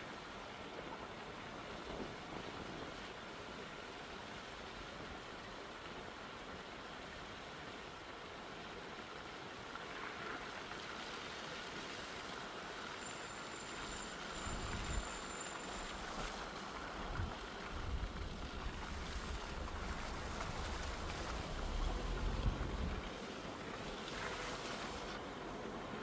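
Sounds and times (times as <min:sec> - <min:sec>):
steady rushing noise: 0:15.8 - 0:26.0
wind buffeting microphone: 0:17.0 - 0:23.1.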